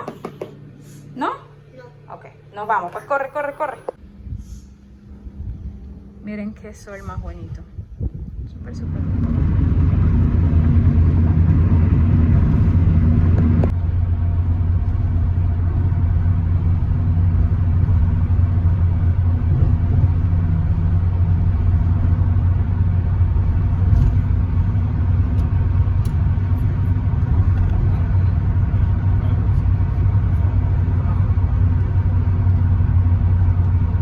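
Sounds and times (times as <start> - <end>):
car engine and road rumble: 7.7 - 34.0.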